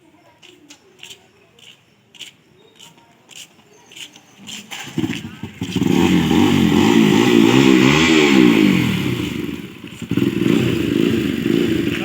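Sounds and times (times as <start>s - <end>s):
motorcycle engine revving: 4.5s - 12.0s.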